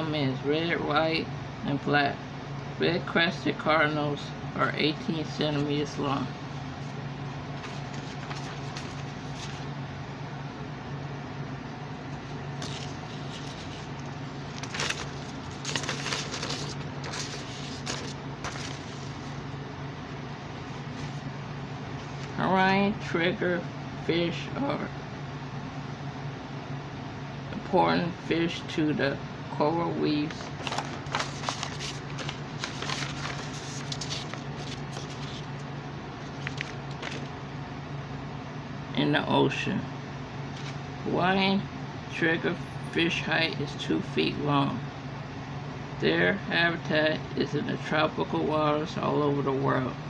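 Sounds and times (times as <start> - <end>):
low background hum: 0.0 - 50.0.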